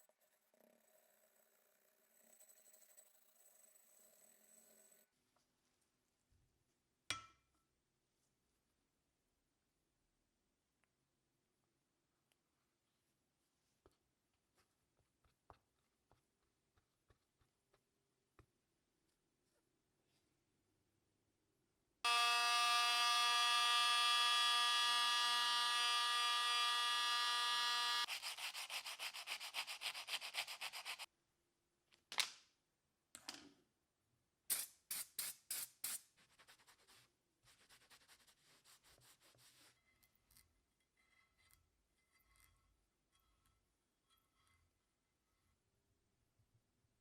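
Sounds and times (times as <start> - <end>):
power tool whining: 22.1 - 28.1
rubbing strokes on metal: 28.0 - 31.1, 34.9 - 39.8
short scrapes and rubs: 28.0 - 31.1, 35.5 - 40.2.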